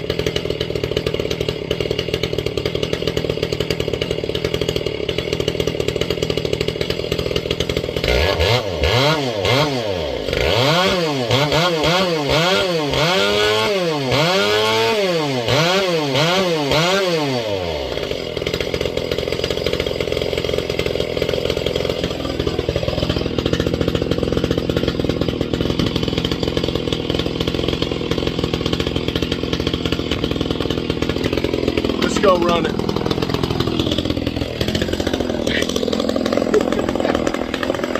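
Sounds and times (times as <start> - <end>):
chainsaw revving and idling: 0.0 - 37.9.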